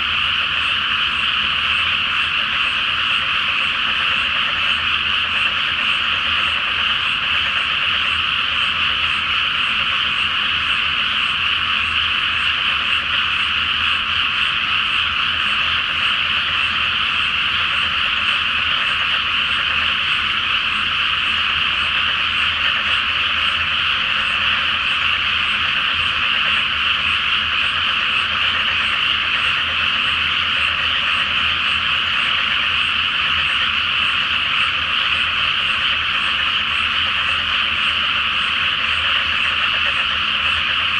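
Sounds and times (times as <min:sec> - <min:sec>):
frogs croaking chorus: 0:00.0 - 0:40.9.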